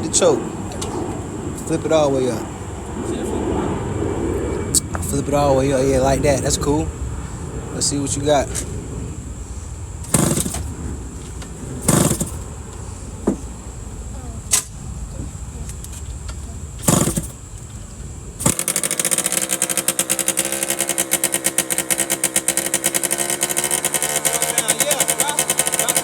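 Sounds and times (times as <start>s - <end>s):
two-stroke engine running: 0.0s - 26.0s
motorcycle engine kick-started: 10.0s - 12.5s, 16.8s - 17.8s, 18.4s - 26.0s.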